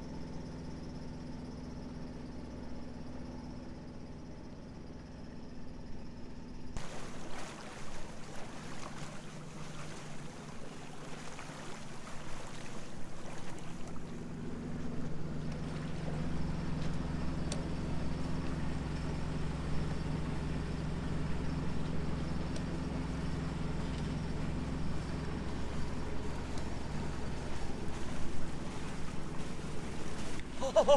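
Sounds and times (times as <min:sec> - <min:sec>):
low engine hum: 0:00.0 - 0:30.9
wind and water rushing: 0:06.8 - 0:14.4, 0:25.8 - 0:30.9.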